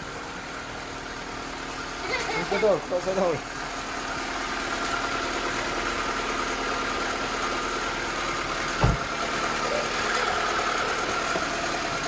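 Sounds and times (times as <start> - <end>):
car engine idling: 0.0 - 12.0
low thump: 8.8 - 9.1.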